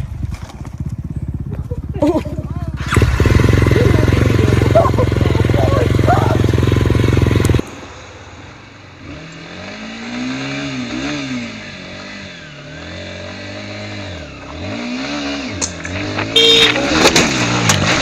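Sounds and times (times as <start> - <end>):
motorcycle engine revving: 0.0 - 7.7, 8.4 - 18.0.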